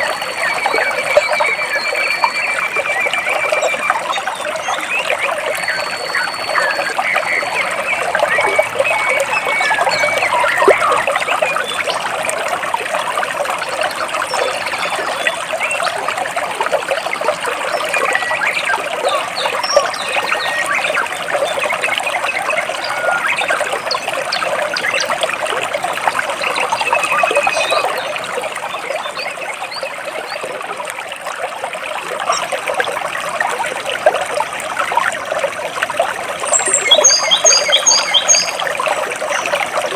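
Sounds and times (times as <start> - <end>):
stream water splashing between rocks: 0.0 - 39.9
high bird chirps: 36.5 - 38.6.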